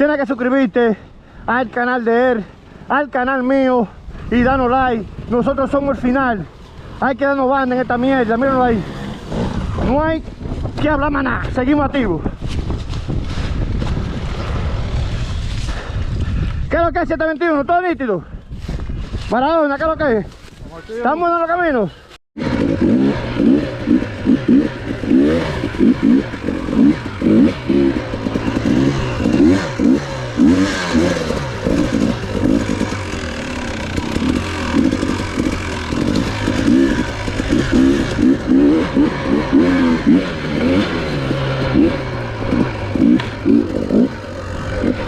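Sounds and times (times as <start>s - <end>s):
dirt bike engine revving: 1.6s - 11.8s, 12.8s - 16.0s, 22.4s - 45.0s.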